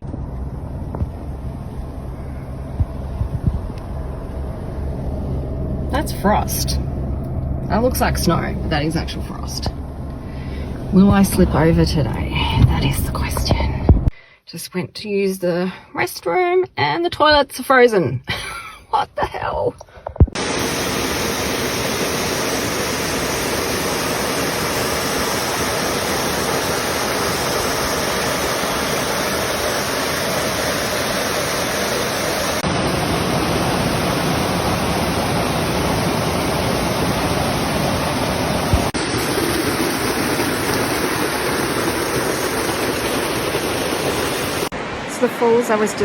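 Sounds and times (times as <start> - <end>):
waterfall rushing: 20.4 - 46.0.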